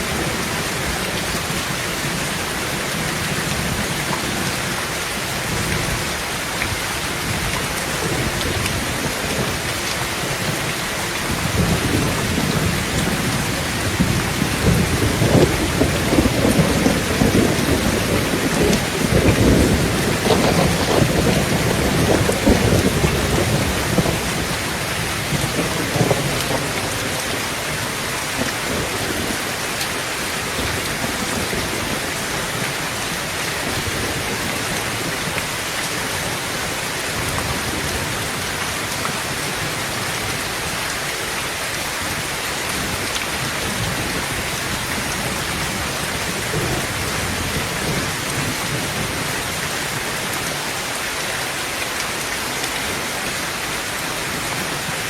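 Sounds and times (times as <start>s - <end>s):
heavy rain on a tin roof: 0.0s - 55.0s
thunder rumbling: 7.2s - 29.5s.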